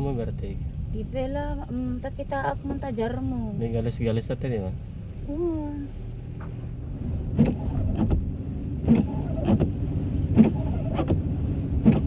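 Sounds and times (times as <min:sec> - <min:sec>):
car cabin low rumble: 0:00.0 - 0:12.0.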